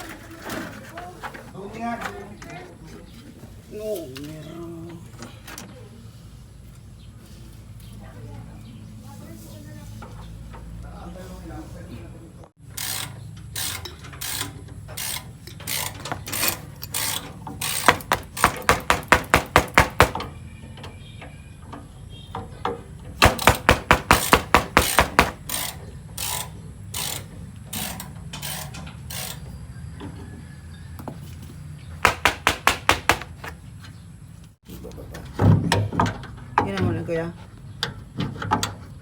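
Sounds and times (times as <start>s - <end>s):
ratchet wrench clicking: 12.7s - 18.6s, 23.3s - 29.5s.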